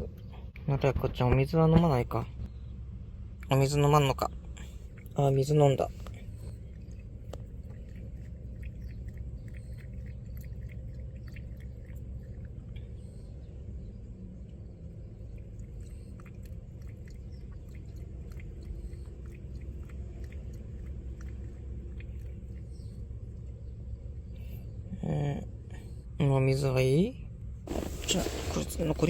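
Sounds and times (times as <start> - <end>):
low background hum: 0.0 - 29.0
cat eating wet clicks: 4.6 - 13.4, 14.5 - 23.6.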